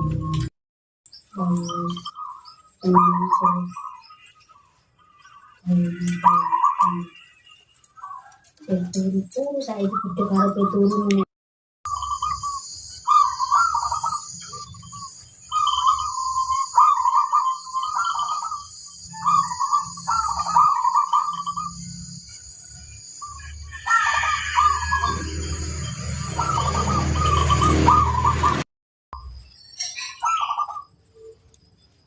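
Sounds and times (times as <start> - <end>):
dove cooing: 1.6 - 4.2, 5.1 - 7.4, 11.9 - 22.1, 23.2 - 28.6, 30.0 - 30.9
low rumbling noise: 24.3 - 28.6.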